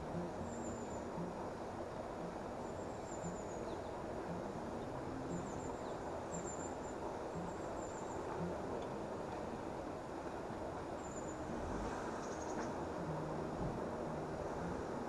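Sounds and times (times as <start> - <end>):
faint high-pitched chirps: 0.0 - 8.7
outdoor background noise: 0.0 - 15.0.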